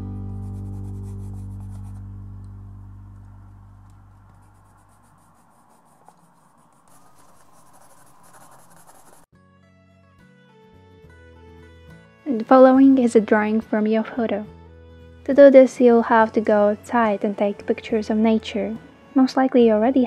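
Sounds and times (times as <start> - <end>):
low chord background music: 0.0 - 4.8, 9.4 - 20.0
pencil scratching on paper: 0.4 - 2.0, 4.1 - 9.3.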